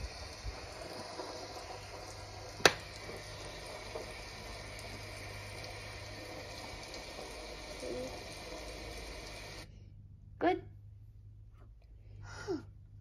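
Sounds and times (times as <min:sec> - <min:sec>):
rain sound hiss: 0:00.0 - 0:09.7.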